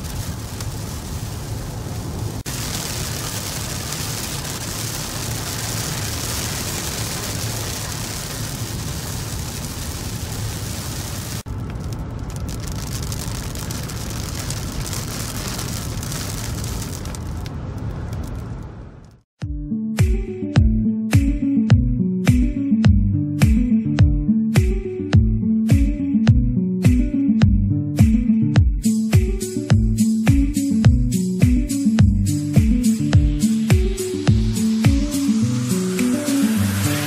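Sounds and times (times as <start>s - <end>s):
tyre hiss on wet road: 0.0s - 18.3s, 32.4s - 37.0s
car road and engine rumble: 0.0s - 19.3s.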